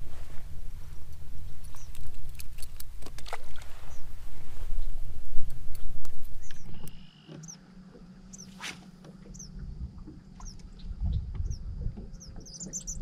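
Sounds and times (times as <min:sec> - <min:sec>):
low steady hum: 0:00.0 - 0:13.0
birds chirping: 0:05.7 - 0:13.0
low bumps: 0:07.4 - 0:13.0
microphone handling rumble: 0:09.2 - 0:13.0.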